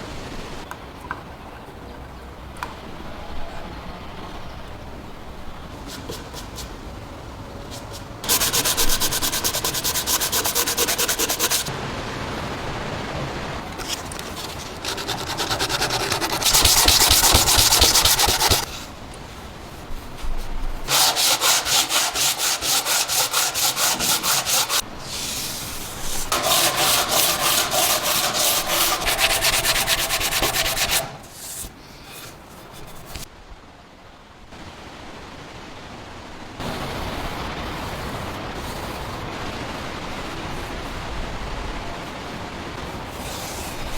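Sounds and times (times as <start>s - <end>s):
hand sanding strokes: 5.8s - 6.9s, 7.7s - 11.7s, 13.8s - 33.3s, 37.0s - 39.4s, 42.9s - 43.9s.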